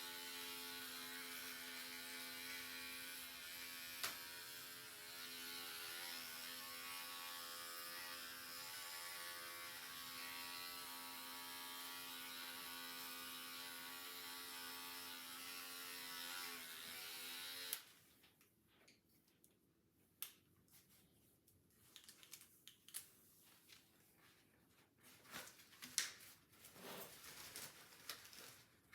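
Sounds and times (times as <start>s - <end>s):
electric hair clippers buzzing: 0.0s - 17.9s.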